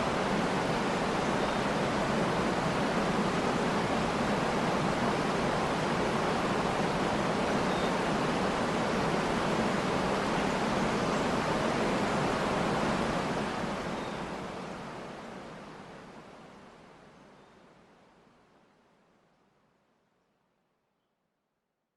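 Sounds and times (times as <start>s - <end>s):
faint bird chirps: 7.6s - 8.0s.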